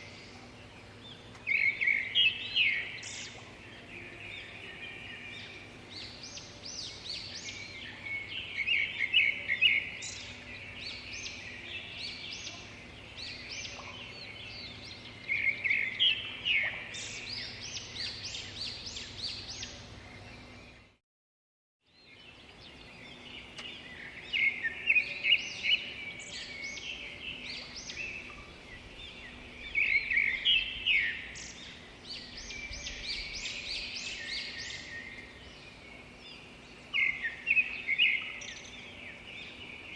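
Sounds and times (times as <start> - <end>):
birds chirping: 0.0 - 21.0, 21.9 - 39.9
faint steady hum: 0.0 - 21.0, 21.9 - 39.9.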